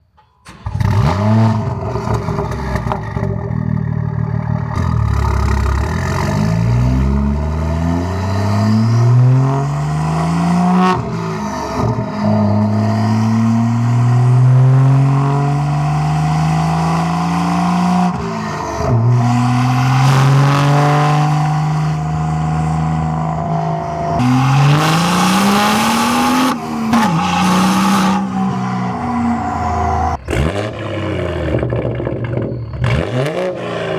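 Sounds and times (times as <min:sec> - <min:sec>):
car engine accelerating hard: 0:00.5 - 0:33.9.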